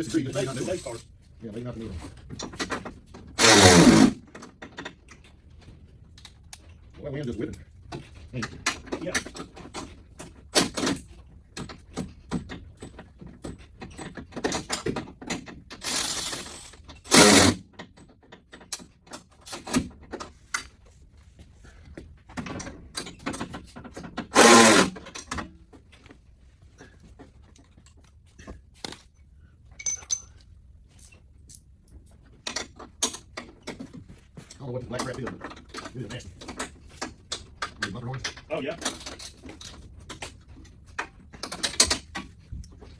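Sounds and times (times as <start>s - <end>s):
tools and parts clinking: 0.0s - 1.1s, 12.4s - 17.5s, 29.7s - 40.8s.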